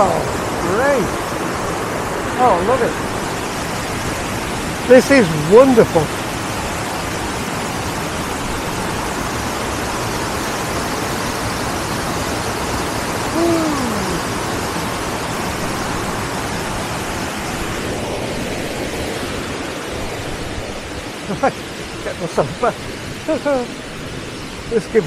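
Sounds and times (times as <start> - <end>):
flowing water rushing: 0.0 - 25.0
short falling hoot: 13.3 - 14.3.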